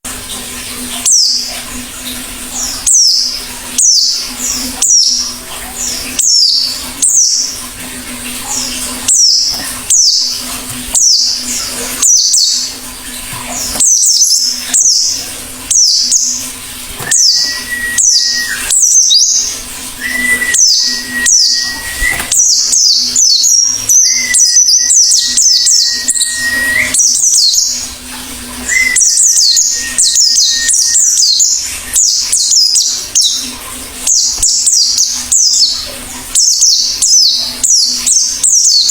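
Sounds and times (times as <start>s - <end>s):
long whistled notes: 17.1s - 18.7s, 20.0s - 22.3s.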